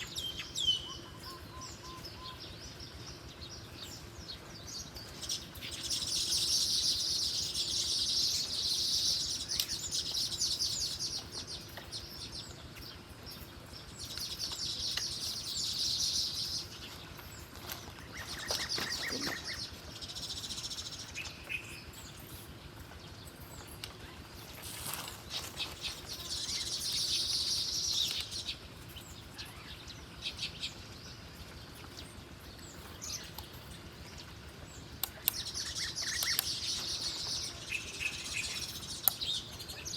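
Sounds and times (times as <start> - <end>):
small bird chattering calls: 34.9 - 39.9.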